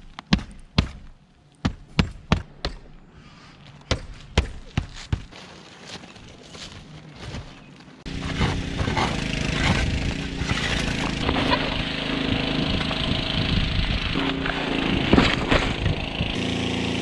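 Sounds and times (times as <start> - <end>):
engine running: 8.0 - 17.0.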